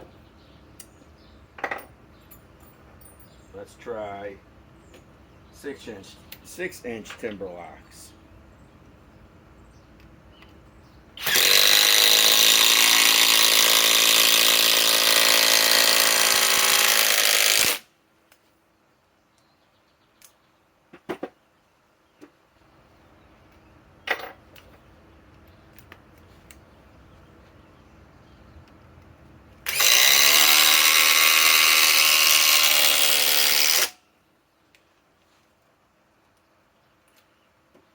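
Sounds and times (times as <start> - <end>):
impact driver hammering screw into wood: 11.2 - 17.8, 29.7 - 34.0.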